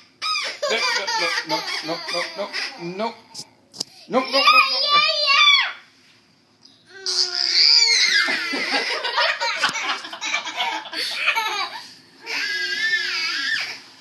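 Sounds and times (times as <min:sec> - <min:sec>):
toddlers laughing and squealing: 0:00.2 - 0:03.0, 0:07.0 - 0:13.9.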